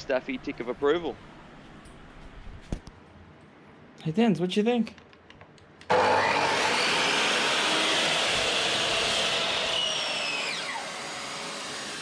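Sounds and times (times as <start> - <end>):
mitre saw and shop vacuum rushing: 5.9 - 12.0
motor whine winding down: 5.9 - 12.0.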